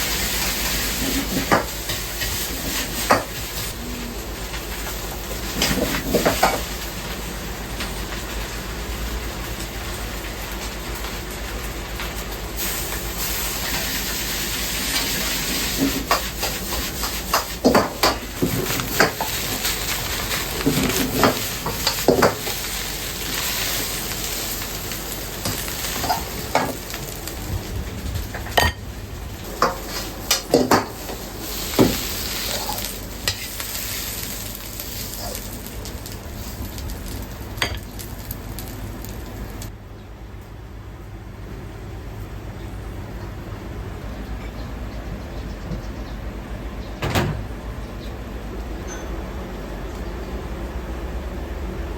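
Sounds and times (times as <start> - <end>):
food sizzling in a pan: 0.0 - 7.3, 12.2 - 28.8, 29.4 - 39.7.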